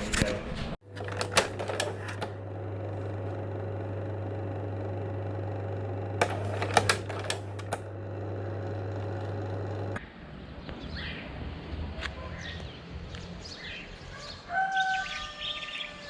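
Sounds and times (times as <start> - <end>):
low mechanical hum: 0.8 - 10.0
sharp clicks and clacks: 0.8 - 10.0.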